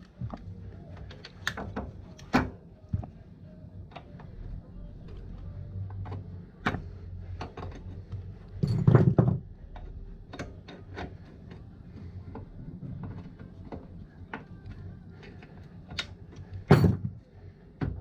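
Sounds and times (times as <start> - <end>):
metal tools clicking and knocking: 6.0 - 11.6, 15.2 - 17.2.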